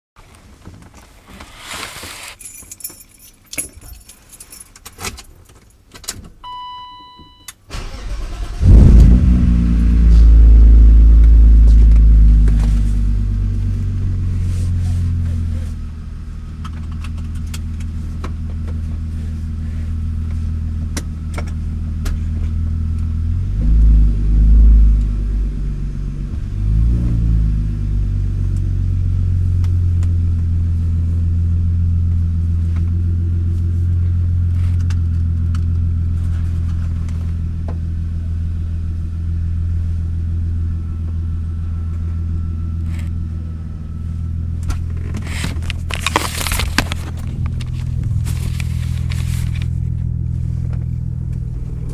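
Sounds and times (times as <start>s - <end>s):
car engine idling: 7.7s - 23.4s, 27.7s - 51.9s
engine revving: 7.8s - 15.4s, 23.3s - 28.2s.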